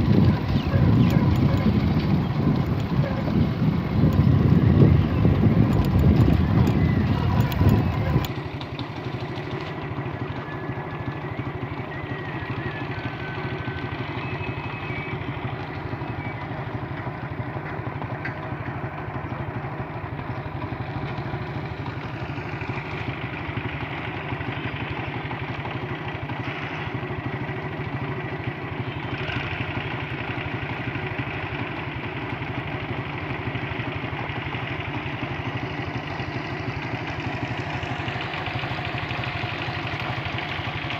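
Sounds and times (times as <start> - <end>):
vehicle engine running: 0.0 - 40.9.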